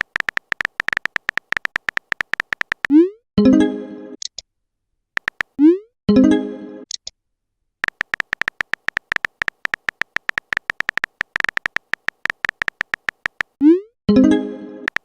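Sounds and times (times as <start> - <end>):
phone keyboard tap clicks: 0.0 - 2.9, 5.2 - 5.6, 7.8 - 13.6.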